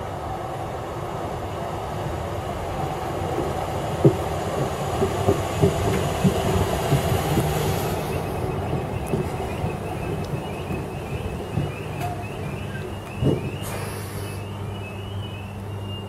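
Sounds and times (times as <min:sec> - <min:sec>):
train rumbling past: 0:00.0 - 0:16.0
wheels thumping over rail joints: 0:03.3 - 0:13.9.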